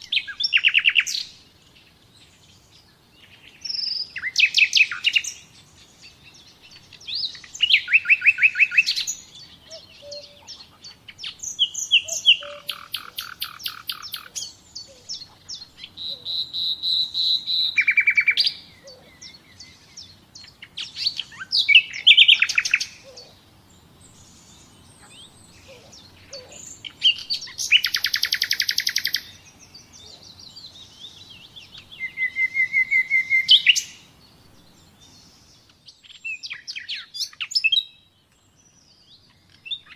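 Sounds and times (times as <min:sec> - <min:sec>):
songbirds trilling and chirping: 0:00.0 - 0:39.9.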